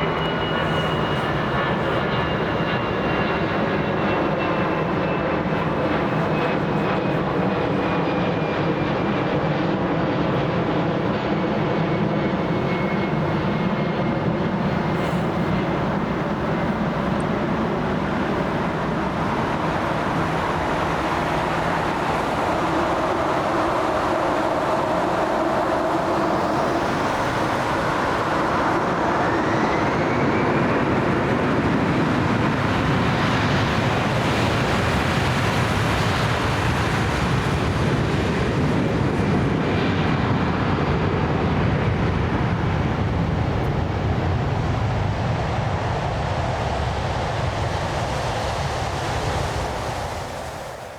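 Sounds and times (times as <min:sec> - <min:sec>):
jet engines roaring with whine: 0:00.0 - 0:50.9.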